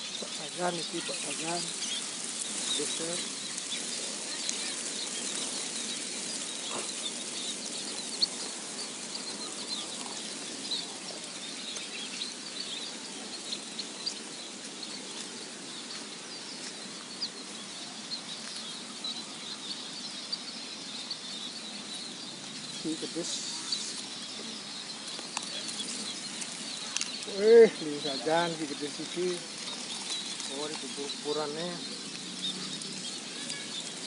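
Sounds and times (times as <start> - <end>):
outdoor rustling noise: 0.0 - 34.0.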